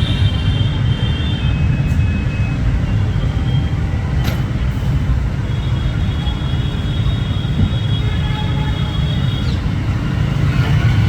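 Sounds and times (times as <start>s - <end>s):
low rumble of motor vehicles: 0.0s - 11.0s.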